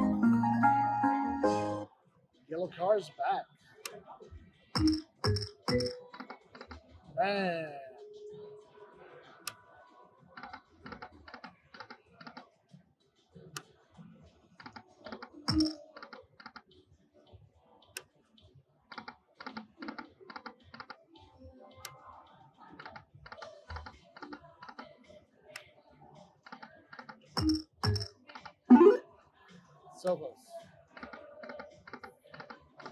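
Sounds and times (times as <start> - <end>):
slot machine reels clicking: 4.8 - 6.0, 15.5 - 15.8, 27.4 - 28.1.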